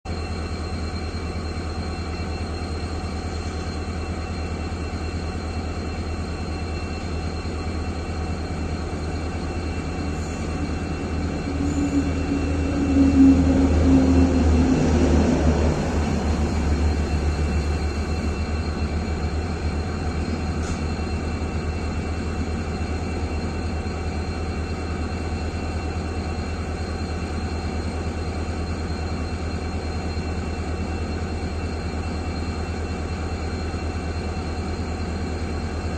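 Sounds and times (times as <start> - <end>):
train rumbling past: 7.4 - 24.4.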